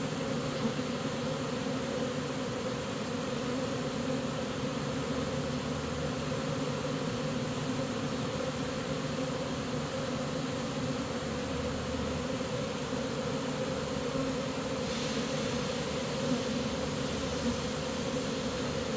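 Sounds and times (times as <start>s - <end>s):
bee swarm buzzing: 0.0s - 18.9s.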